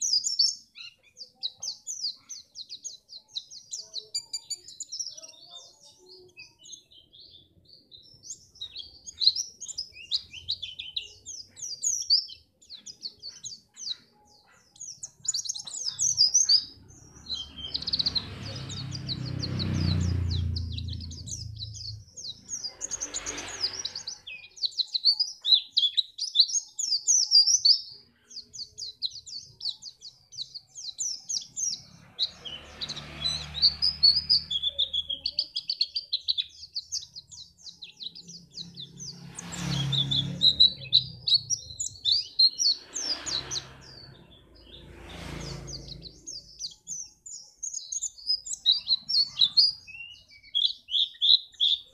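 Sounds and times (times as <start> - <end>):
bird twittering song: 0.0 - 51.9
rushing noise with low rumble: 42.8 - 46.6.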